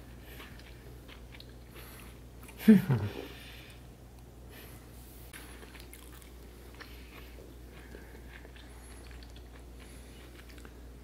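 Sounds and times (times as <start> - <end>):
person chewing crispy chicken: 0.0 - 3.0, 5.4 - 11.0.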